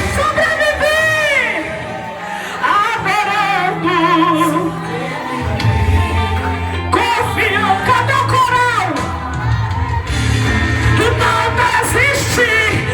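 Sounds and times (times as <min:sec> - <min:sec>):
backing band: 0:03.3 - 0:12.9
woman singing gospel: 0:11.0 - 0:12.9.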